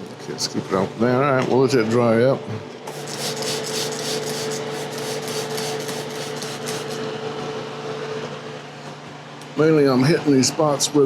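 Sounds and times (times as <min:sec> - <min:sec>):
hand rubbing against wood: 0:02.9 - 0:07.0.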